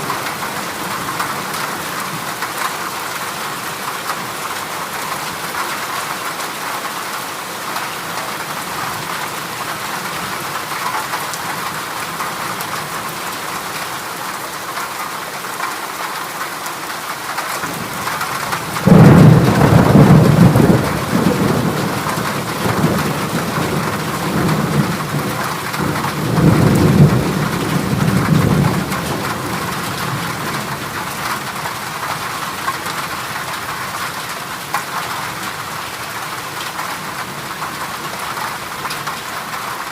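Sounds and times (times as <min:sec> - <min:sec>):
heavy rain on a metal roof: 0:00.0 - 0:39.9
thunder rumbling: 0:17.7 - 0:31.6.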